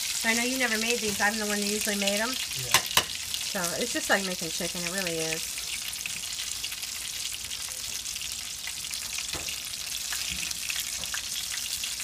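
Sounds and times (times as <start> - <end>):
batter frying in hot oil: 0.0 - 12.0
metal tongs knocking a pan: 2.7 - 3.2.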